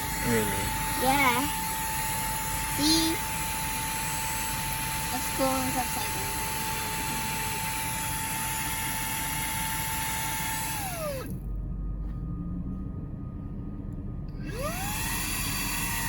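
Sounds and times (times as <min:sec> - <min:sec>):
vacuum cleaner motor whine: 0:00.0 - 0:11.4, 0:14.3 - 0:16.0.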